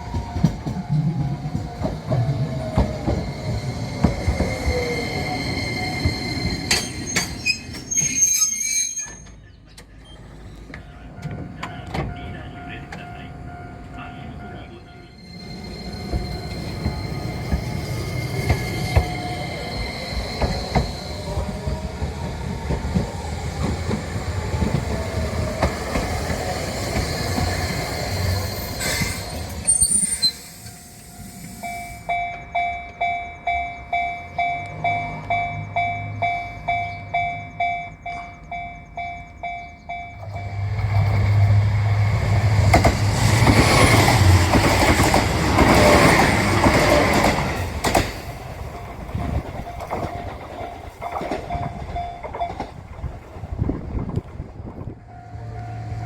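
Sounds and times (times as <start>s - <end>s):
diesel train passing: 0.0s - 56.0s
rail vehicle rumble: 0.0s - 56.0s
wheel and rail noise: 0.0s - 56.0s.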